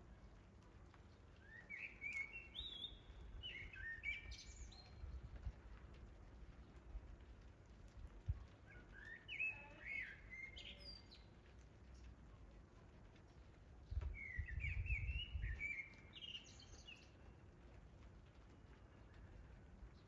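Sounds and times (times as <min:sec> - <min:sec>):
songbird chirping: 0:00.9 - 0:05.6, 0:08.6 - 0:12.2, 0:13.8 - 0:17.4.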